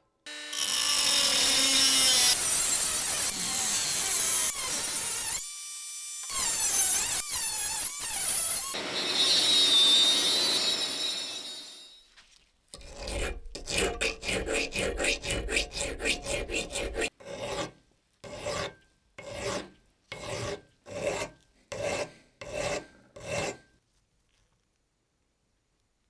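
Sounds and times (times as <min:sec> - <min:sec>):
abrasive scraping metal: 0:12.8 - 0:17.1.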